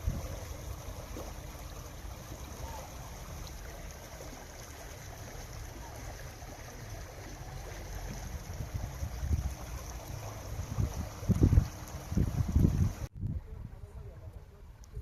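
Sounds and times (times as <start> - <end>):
wind rumbling on microphone: 0.0 - 1.8, 7.8 - 15.0
stream water rushing: 0.0 - 13.1.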